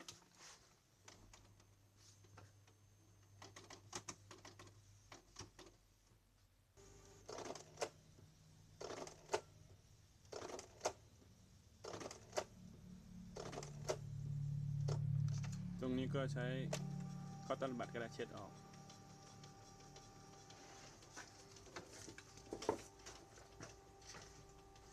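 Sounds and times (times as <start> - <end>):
printer running: 11.8 - 24.9.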